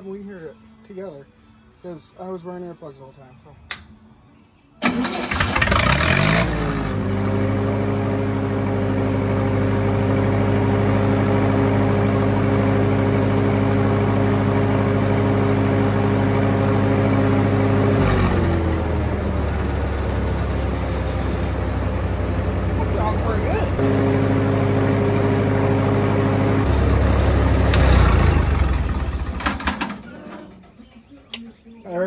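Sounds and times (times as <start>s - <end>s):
engine starter cranking: 4.8s - 6.4s, 27.6s - 30.7s
welder engine running: 4.8s - 30.2s.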